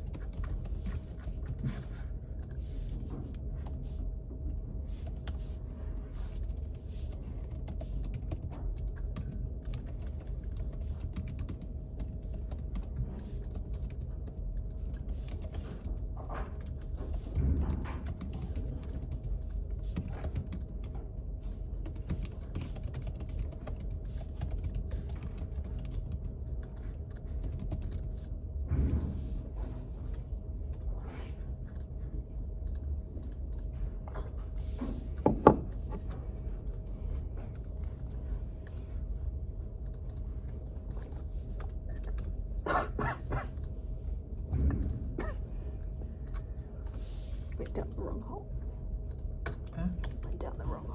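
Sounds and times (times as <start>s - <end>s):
low steady hum: 0.0s - 50.9s
ventilation rumble: 0.0s - 50.9s
person's voice: 49.8s - 50.9s.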